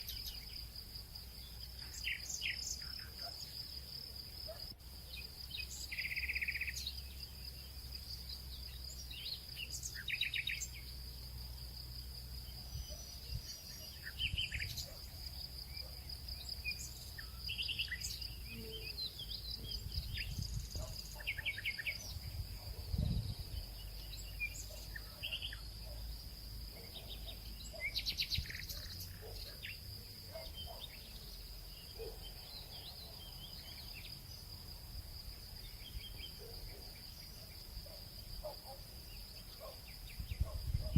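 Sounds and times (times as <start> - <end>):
bird chirps: 0.0 - 0.6, 1.4 - 3.6, 4.5 - 10.9, 12.5 - 26.1, 26.7 - 34.4
cricket trill: 0.0 - 40.9.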